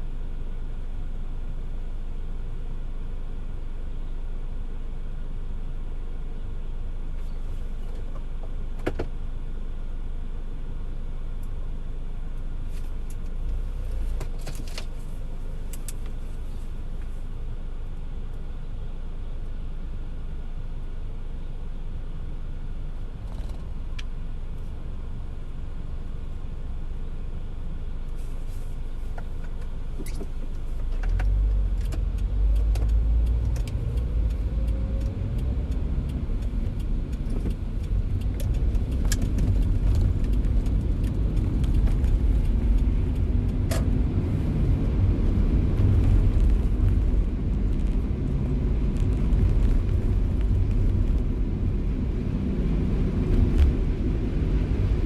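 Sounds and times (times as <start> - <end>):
car road rumble: 0.0 - 55.0
sharp ticks: 31.2 - 43.9.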